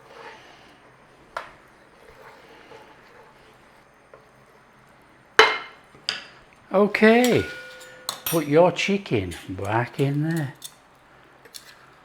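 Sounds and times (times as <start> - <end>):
sharp ringing clink: 7.2 - 8.6.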